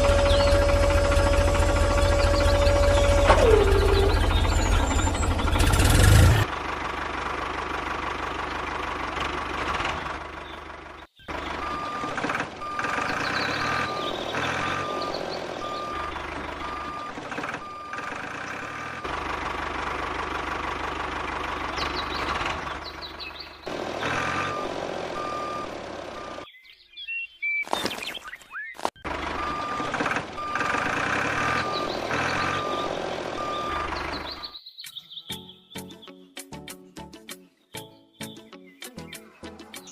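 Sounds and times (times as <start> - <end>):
reversing alarm beeping: 0.0 - 5.5, 11.6 - 19.1, 24.1 - 26.5, 29.3 - 34.5.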